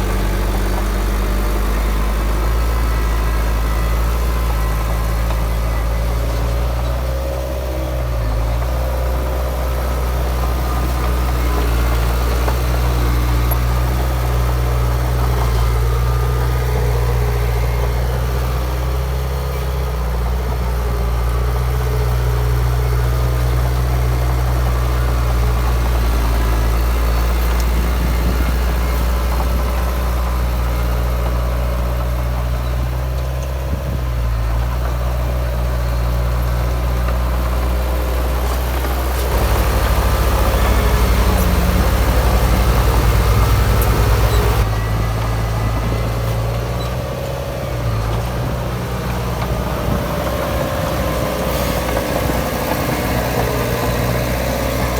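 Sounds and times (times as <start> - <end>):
heavy diesel engine running: 0.0 - 54.9.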